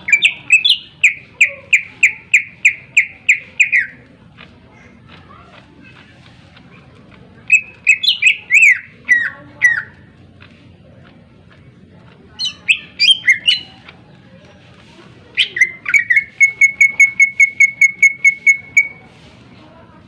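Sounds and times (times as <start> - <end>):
bird loud whistled song: 0.0 - 4.0, 7.5 - 9.9, 12.4 - 13.8, 15.4 - 19.1.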